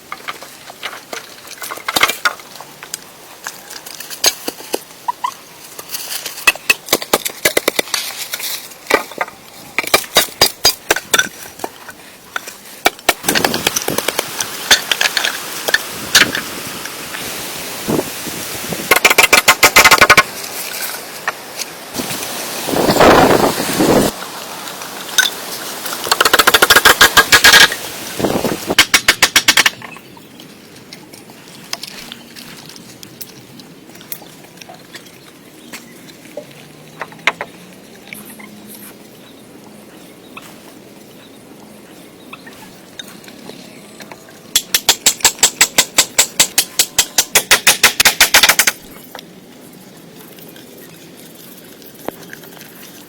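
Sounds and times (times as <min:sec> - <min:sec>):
rapid mechanical clicks: 0:44.5 - 0:48.9
rapid sharp knocks: 0:44.6 - 0:48.8.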